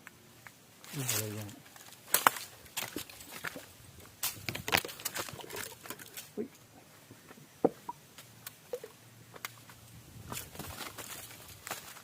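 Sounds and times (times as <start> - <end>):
footsteps on dry rock: 0.9 - 6.3, 9.3 - 12.0.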